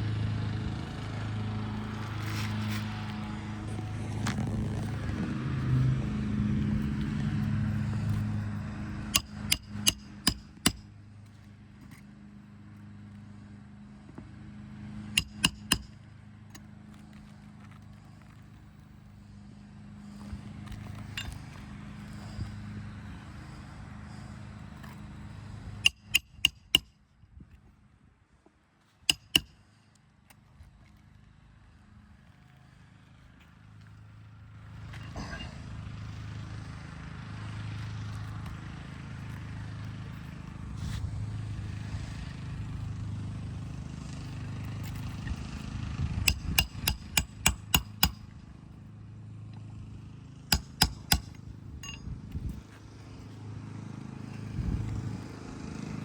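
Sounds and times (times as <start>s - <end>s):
hammer striking roofing nails: 9.1s - 10.8s, 15.2s - 16.0s, 25.8s - 26.9s, 29.1s - 29.6s, 46.3s - 48.3s, 50.5s - 52.0s.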